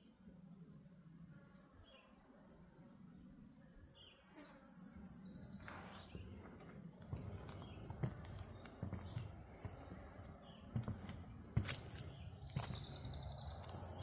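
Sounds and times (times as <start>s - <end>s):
footsteps on a trail: 5.5s - 14.0s.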